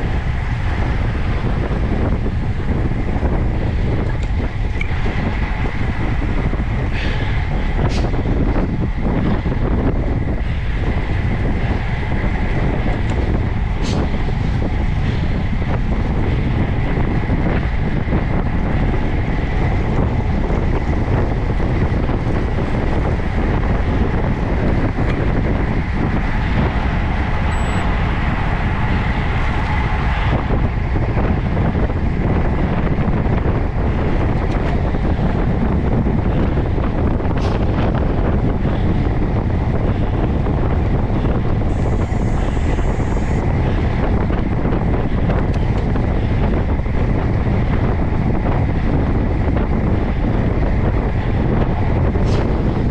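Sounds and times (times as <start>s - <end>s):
wind noise on microphone: 0.0s - 52.9s
faint high steady tone: 27.5s - 27.9s.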